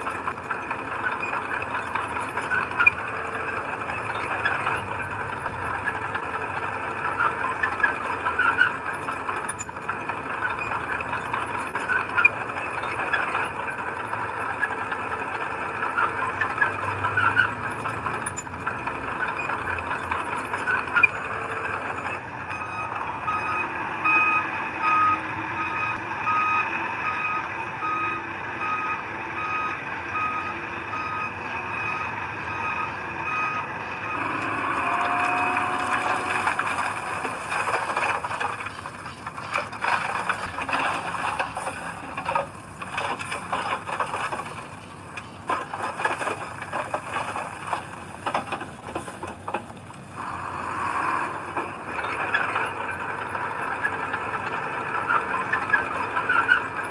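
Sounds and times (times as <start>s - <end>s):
diesel engine running: 0.0s - 56.9s
machinery clanks and rattles: 0.0s - 56.9s
reversing alarm beeping: 19.3s - 37.0s.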